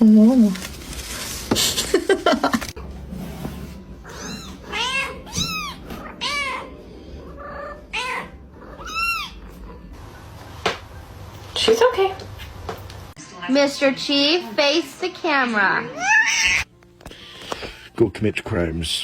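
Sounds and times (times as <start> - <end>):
cat meowing: 4.0 - 6.7, 7.4 - 9.6, 15.9 - 16.7.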